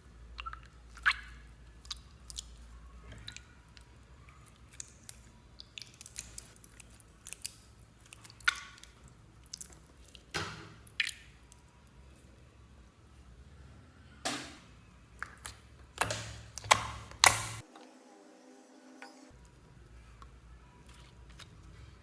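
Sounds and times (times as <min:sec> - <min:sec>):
slime squished by hand: 0:00.4 - 0:11.9.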